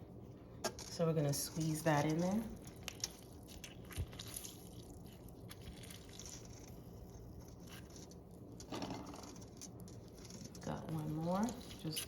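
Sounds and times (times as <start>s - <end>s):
lemon rind crunching and squishing: 0.7s - 12.0s.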